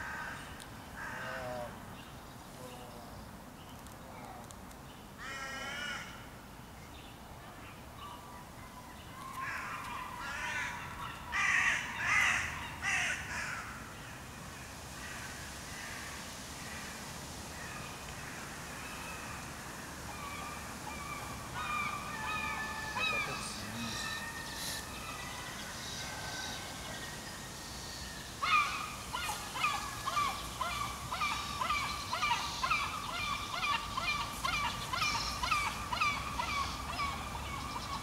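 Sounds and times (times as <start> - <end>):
harsh bird calls: 20.1 - 38.0.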